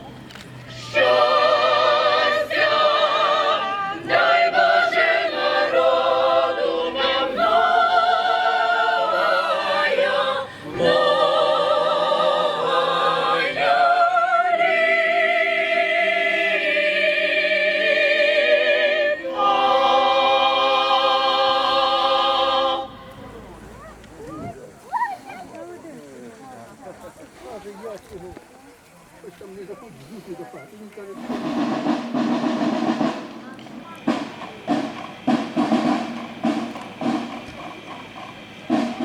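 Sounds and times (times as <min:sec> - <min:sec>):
choir singing held notes: 0:00.7 - 0:23.6
singers breathing: 0:10.4 - 0:10.8.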